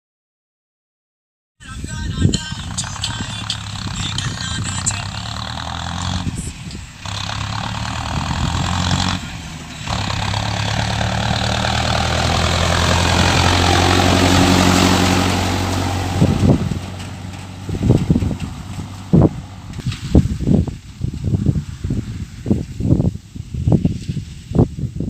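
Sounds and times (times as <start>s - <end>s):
tractor diesel engine running: 1.7s - 24.1s.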